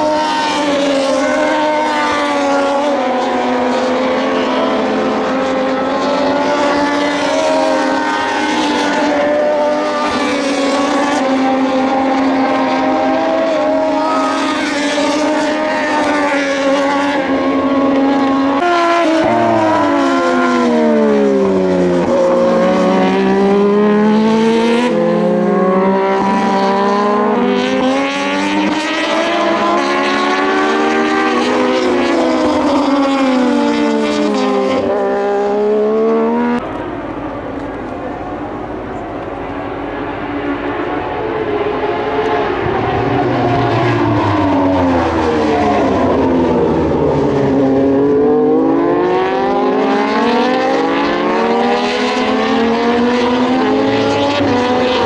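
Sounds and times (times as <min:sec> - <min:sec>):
motorcycles running at high revs: 0:00.0 - 0:55.0.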